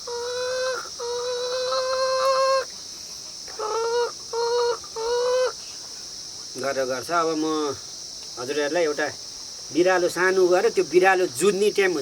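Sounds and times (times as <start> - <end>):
man imitating hen cackle: 0.0 - 2.7, 3.6 - 5.6.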